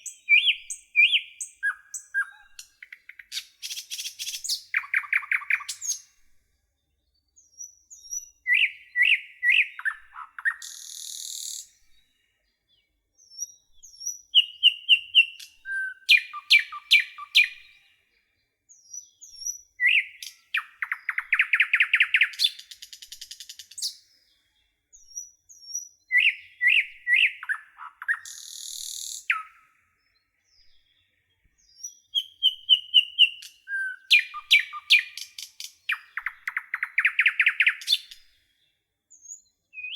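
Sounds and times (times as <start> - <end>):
songbird singing trills and rattles: 0.0 - 6.1, 7.5 - 11.8, 13.2 - 17.6, 19.0 - 24.0, 25.0 - 29.5, 31.7 - 38.2.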